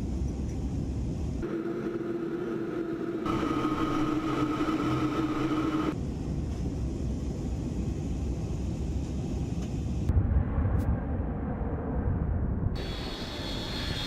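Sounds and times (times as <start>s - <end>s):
jet engines whining: 1.4s - 6.0s, 12.8s - 14.0s.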